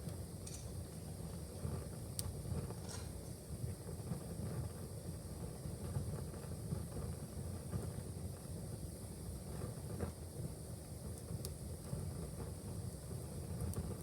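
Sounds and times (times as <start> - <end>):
wood fire burning: 0.0 - 14.0.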